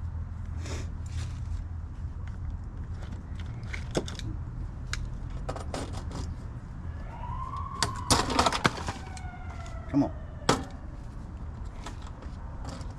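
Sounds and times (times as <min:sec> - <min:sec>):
siren wailing: 0:06.9 - 0:11.1.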